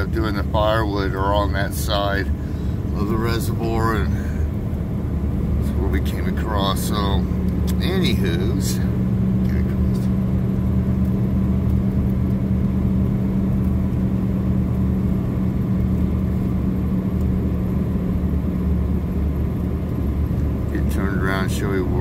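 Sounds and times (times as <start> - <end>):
vehicle interior engine hum: 0.0 - 22.0.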